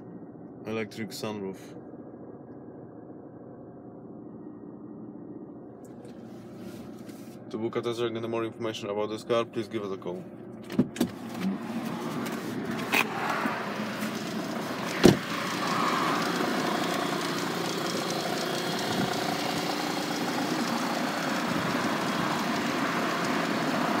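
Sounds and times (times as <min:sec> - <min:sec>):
diesel engine idling: 0:11.2 - 0:24.0
sharp thump: 0:14.9 - 0:15.3.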